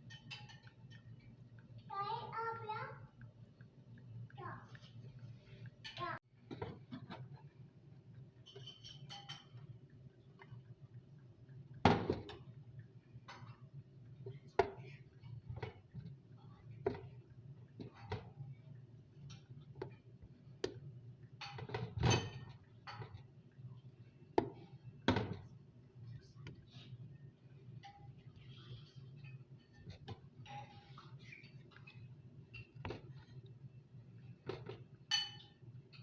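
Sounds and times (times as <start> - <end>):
dishes and utensils clinking: 0.0 - 1.4, 8.4 - 9.8, 21.4 - 23.3, 34.5 - 36.0.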